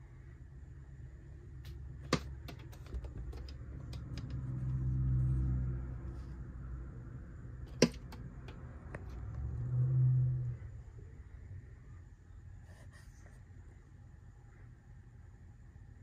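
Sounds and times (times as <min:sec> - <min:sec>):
bird tapping on window glass: 0:02.0 - 0:04.5, 0:07.7 - 0:08.7.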